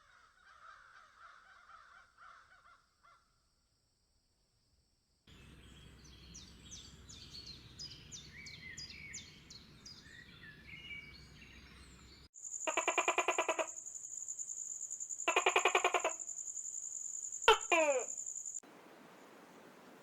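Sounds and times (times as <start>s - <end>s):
small birds chirping: 5.3s - 20.0s
buzzy trembling calls: 12.4s - 20.0s.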